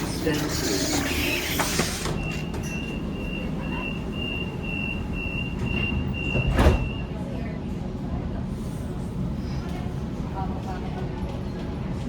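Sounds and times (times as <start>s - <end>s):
low hum of train: 0.0s - 12.0s
door-closing warning beeps: 1.4s - 7.1s.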